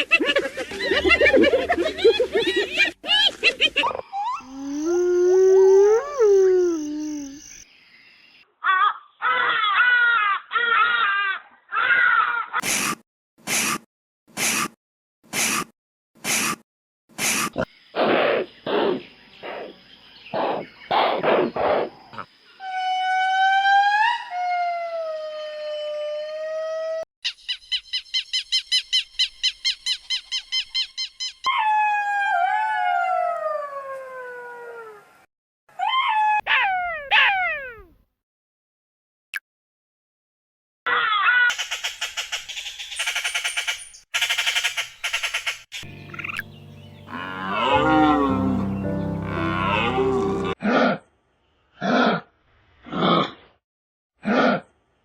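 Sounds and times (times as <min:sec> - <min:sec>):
animal yelping and calling: 0:35.7 - 0:37.9
animal wavering crying calls: 0:47.1 - 0:50.6.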